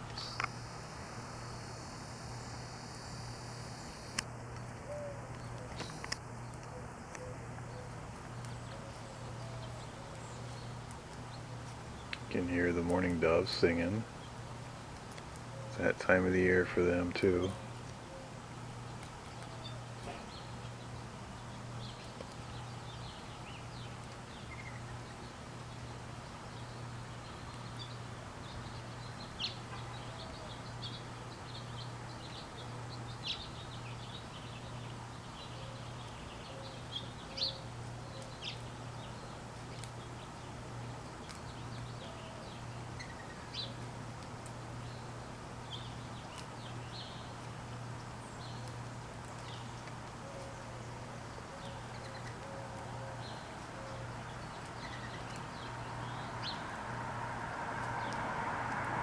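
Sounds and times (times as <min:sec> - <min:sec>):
small birds chirping: 0:00.0 - 0:59.0
steady low hum: 0:00.0 - 0:59.0
mourning dove cooing: 0:04.7 - 0:10.8, 0:15.4 - 0:20.4, 0:29.9 - 0:31.6, 0:35.4 - 0:39.4, 0:41.9 - 0:43.8, 0:50.1 - 0:55.2.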